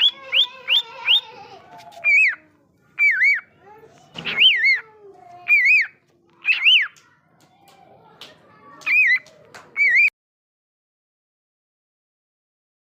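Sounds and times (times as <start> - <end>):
bird calls rising and falling: 0.0 - 3.6, 4.2 - 7.0, 8.8 - 10.1.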